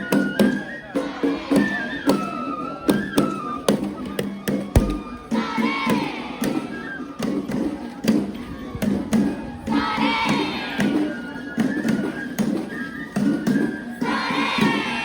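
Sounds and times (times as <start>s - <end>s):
bamboo flute melody: 0.0s - 4.0s, 10.0s - 15.0s
heavy thud: 4.8s - 5.2s
sharp percussion strikes: 4.8s - 5.4s.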